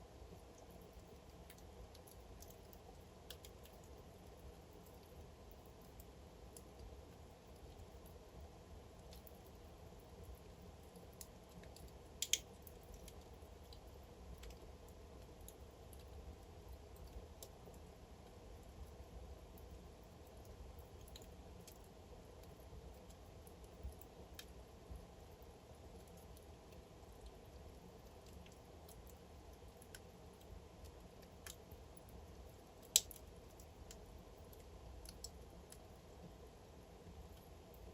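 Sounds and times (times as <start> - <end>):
wood fire crackling: 0.0 - 37.9
low rumble of flames: 0.1 - 37.9
sharp pops from burning logs: 11.1 - 13.8, 32.8 - 35.8.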